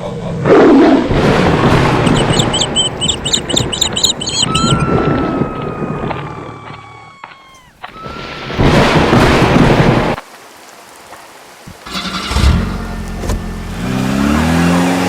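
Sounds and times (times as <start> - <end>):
vehicle engine revving: 11.9 - 15.0.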